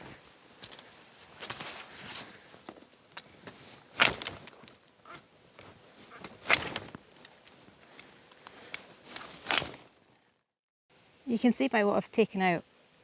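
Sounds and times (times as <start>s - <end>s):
branches cracking: 0.0s - 10.3s.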